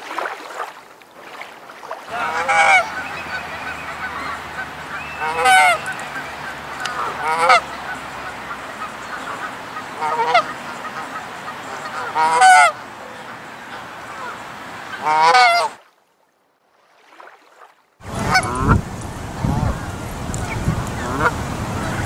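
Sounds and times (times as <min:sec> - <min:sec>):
geese honking: 0:02.1 - 0:15.8, 0:18.0 - 0:22.0.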